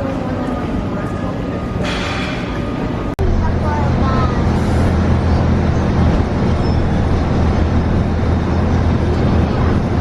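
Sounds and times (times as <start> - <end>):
bus rumbling inside cabin: 0.0 - 10.0.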